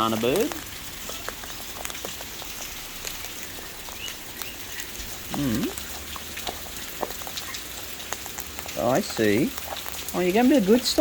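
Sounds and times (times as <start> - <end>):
heavy rain falling: 0.0 - 11.0
raindrops ticking: 0.0 - 11.0
low hum-like vocal sound: 5.3 - 5.8.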